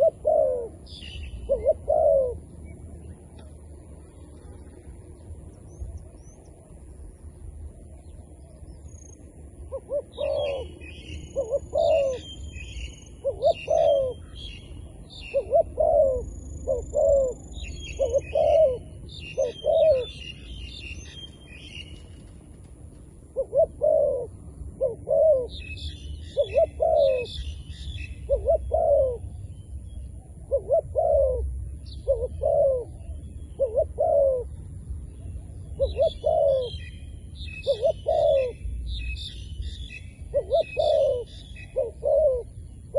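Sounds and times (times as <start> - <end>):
dove cooing: 0.0 - 2.7, 9.7 - 12.3, 13.2 - 14.4, 15.1 - 20.3, 23.3 - 27.6, 28.2 - 29.4, 30.4 - 34.6, 35.6 - 36.9, 37.5 - 38.6, 40.3 - 42.9
bird chirps: 0.0 - 3.5, 8.0 - 22.2, 24.8 - 42.9.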